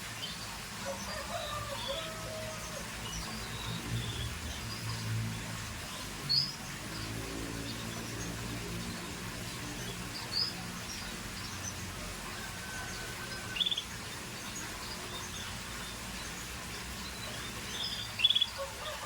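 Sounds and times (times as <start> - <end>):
canary chirping: 17.1 - 18.6.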